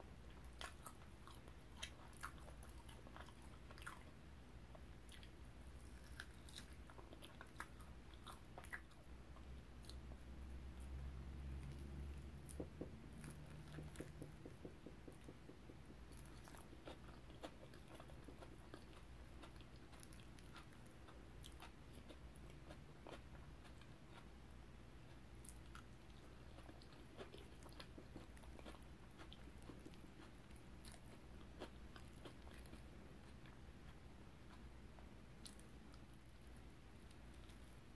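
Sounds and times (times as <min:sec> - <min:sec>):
chewing soft food: 0:00.2 - 0:37.9.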